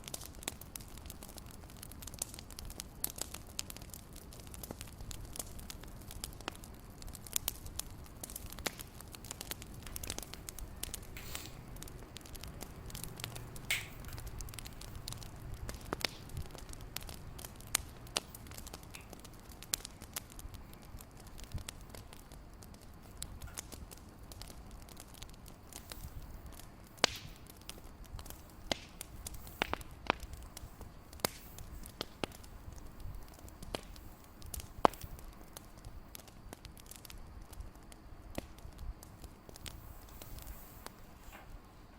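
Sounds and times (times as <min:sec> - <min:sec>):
fire crackling and popping: 0:00.0 - 0:41.9
low steady rumble: 0:00.0 - 0:41.9.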